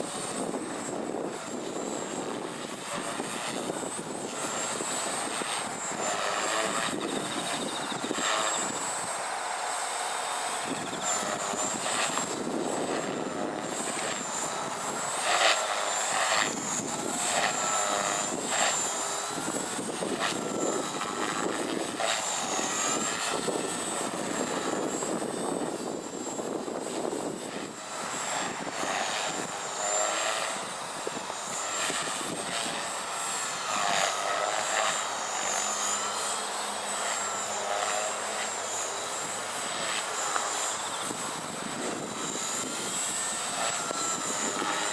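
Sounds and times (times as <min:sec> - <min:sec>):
wind on microphone: 0:00.0 - 0:09.2, 0:10.6 - 0:33.0, 0:39.2 - 0:44.9
rc helicopter motor whine: 0:00.0 - 0:44.9
rotor blade noise: 0:00.0 - 0:44.9.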